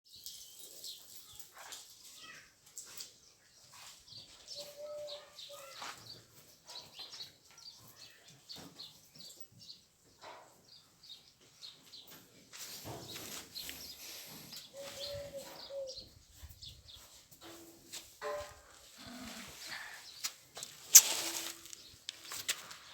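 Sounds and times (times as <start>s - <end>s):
birds chirping: 3.4s - 17.6s.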